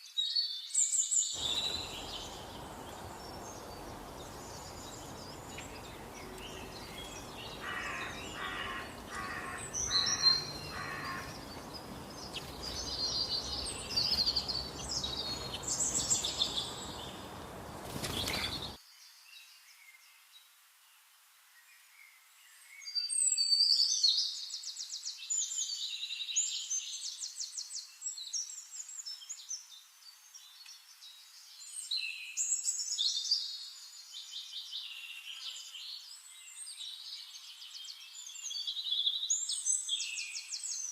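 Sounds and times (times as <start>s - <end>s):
songbirds chirping and trilling: 0.1s - 18.8s
steady outdoor hiss: 1.4s - 19.6s.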